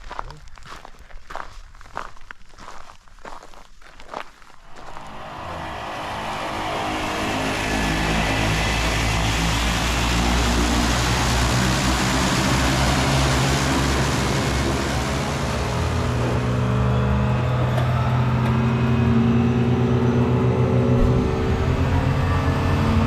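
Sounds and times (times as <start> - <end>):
plane engine and propeller: 4.6 - 23.0.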